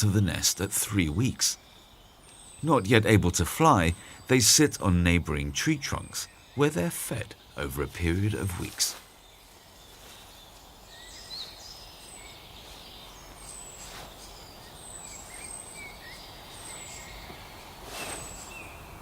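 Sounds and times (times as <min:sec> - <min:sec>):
bird chirps: 0:00.0 - 0:19.0
high falling bird call: 0:02.3 - 0:19.0
soft rustle: 0:08.3 - 0:15.6, 0:16.5 - 0:18.9.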